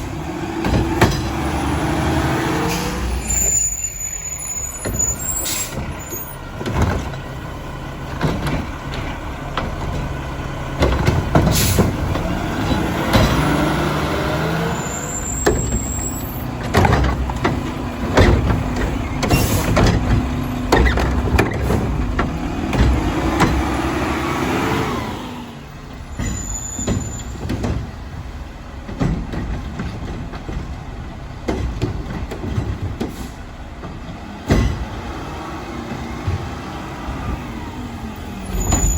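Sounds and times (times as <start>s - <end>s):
truck diesel engine revving: 0.0s - 26.3s, 27.0s - 38.9s
air brake hisses: 2.7s - 5.9s.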